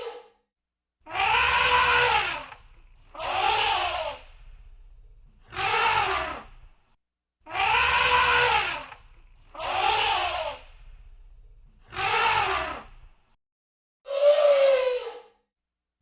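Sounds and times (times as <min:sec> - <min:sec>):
elephant trumpeting: 0:01.1 - 0:06.7, 0:07.5 - 0:11.1, 0:11.9 - 0:13.1.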